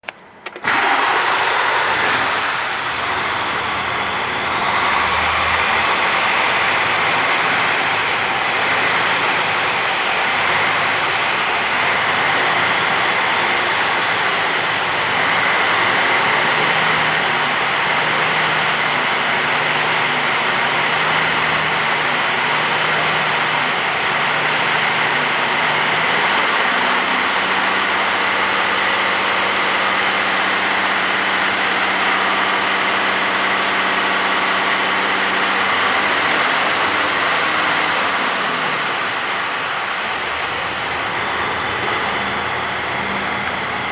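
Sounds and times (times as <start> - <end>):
diesel truck engine idling: 0.1 - 43.9
steady high whine: 38.0 - 43.9.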